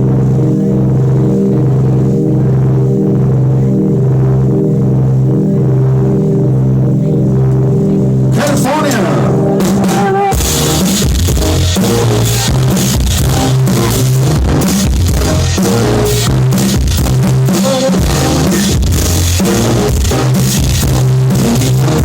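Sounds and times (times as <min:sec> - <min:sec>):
live rock band playing: 0:08.2 - 0:22.0.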